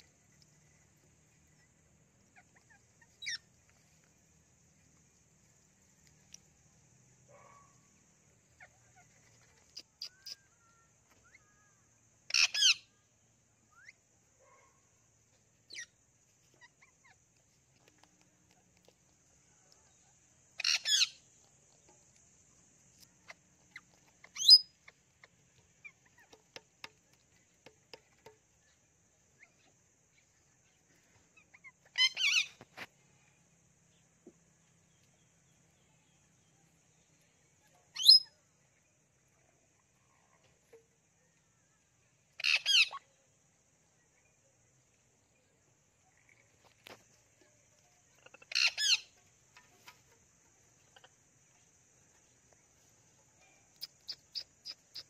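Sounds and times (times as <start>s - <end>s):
faint chirps: 0.0s - 55.0s
parrots squawking: 48.2s - 49.1s.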